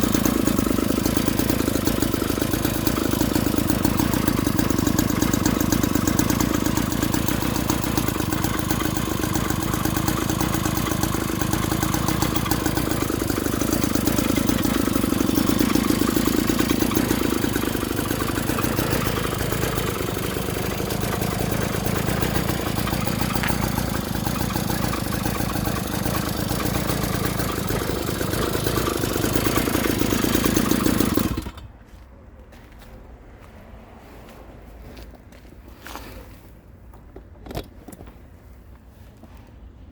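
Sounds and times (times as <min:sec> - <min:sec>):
two-stroke engine idling: 0:00.0 - 0:31.7.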